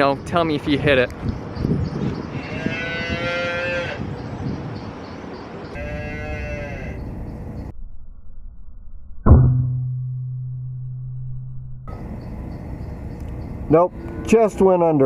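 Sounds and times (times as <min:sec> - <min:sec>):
cattle mooing: 0:02.4 - 0:04.1, 0:05.8 - 0:07.1
low steady hum: 0:07.0 - 0:14.3.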